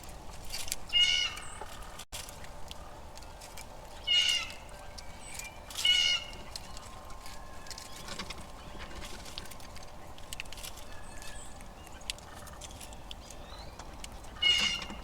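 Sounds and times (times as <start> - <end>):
faint outdoor background: 0.0 - 15.0
animal mewing calls: 13.7 - 15.0.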